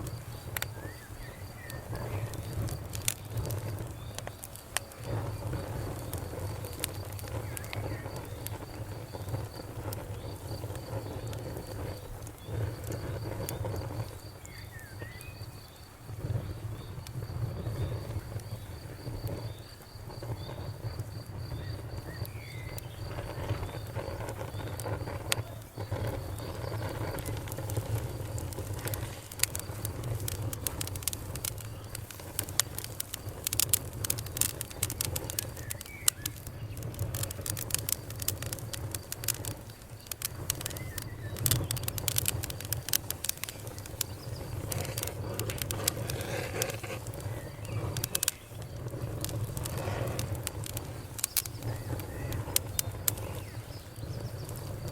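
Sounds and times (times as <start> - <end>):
steady low rumble: 0.0 - 14.6, 15.9 - 54.9
fire crackling and popping: 0.0 - 54.9.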